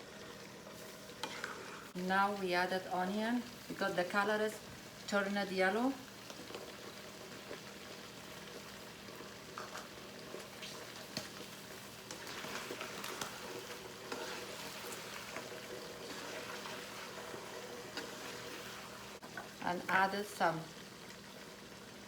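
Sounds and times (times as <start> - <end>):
chicken and onion sizzling in oil: 0.0 - 22.0.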